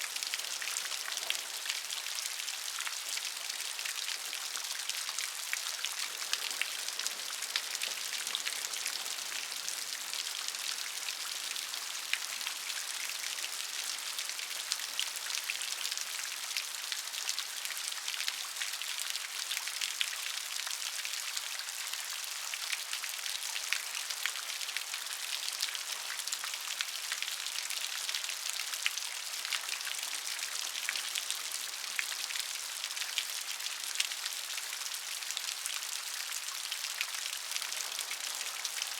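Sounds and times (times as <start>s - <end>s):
steady rain hiss: 0.0s - 16.3s, 36.2s - 38.9s.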